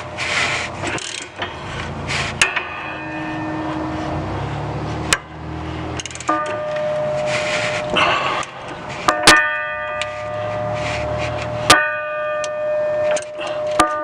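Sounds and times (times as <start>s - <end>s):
rustling and scraping: 0.0s - 14.0s
metal bell ringing: 2.4s - 4.6s, 6.0s - 8.0s, 9.1s - 14.0s.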